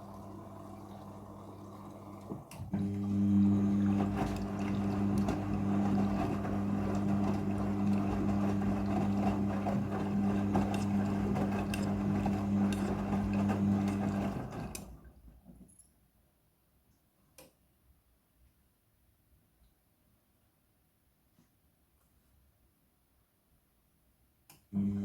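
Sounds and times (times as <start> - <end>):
washing machine running: 0.0 - 15.2, 24.8 - 25.0.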